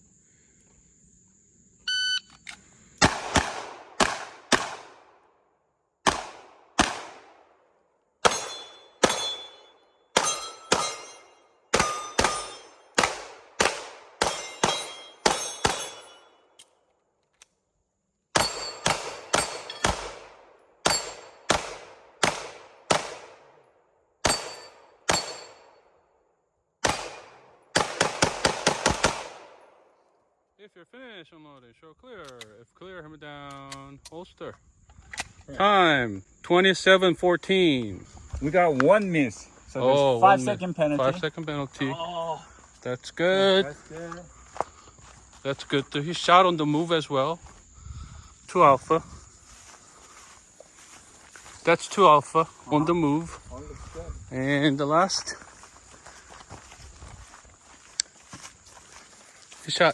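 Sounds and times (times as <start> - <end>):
shot timer beep: 1.9 - 2.4
handgun shots: 3.0 - 5.0, 6.0 - 7.3, 8.2 - 9.6, 10.2 - 16.2, 18.4 - 23.4, 24.2 - 25.6, 26.8 - 29.6
steel targets ringing: 8.2 - 13.0, 14.2 - 16.4, 18.4 - 20.0, 20.8 - 21.5, 24.2 - 25.8.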